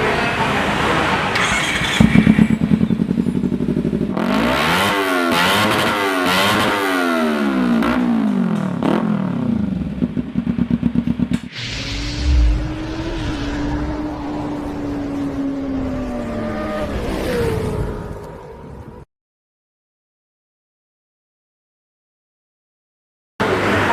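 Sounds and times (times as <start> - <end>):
motorcycle engine revving: 1.4 - 18.1
engine running at steady pitch: 7.4 - 18.3.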